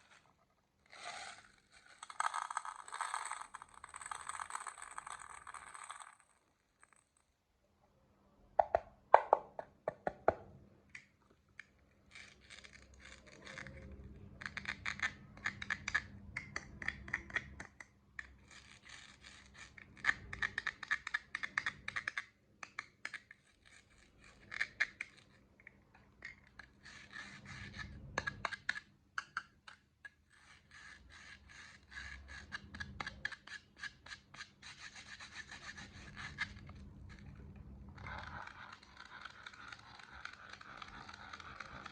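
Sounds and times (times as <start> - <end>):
candies clattering into plastic tubs: 0.9 - 7.2.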